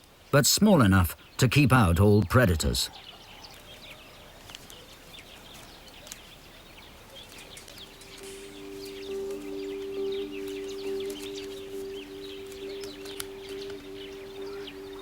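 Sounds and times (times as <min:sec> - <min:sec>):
high bird chirps: 0:07.2 - 0:15.0
soft sustained music notes: 0:07.3 - 0:15.0.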